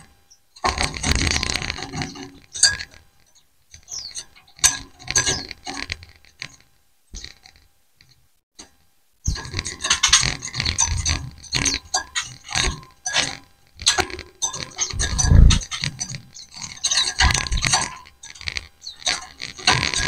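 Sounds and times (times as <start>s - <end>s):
birds twittering: 0.2s - 5.7s, 10.5s - 12.7s, 14.5s - 20.0s
scratchy rustling: 9.4s - 20.0s.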